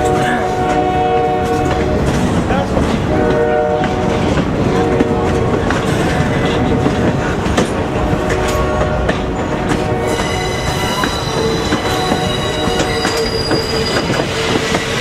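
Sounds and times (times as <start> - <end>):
locomotive horn blasts: 0.0 - 2.0, 3.0 - 6.8, 8.1 - 14.0
train wheels clacking on rails: 0.0 - 15.0.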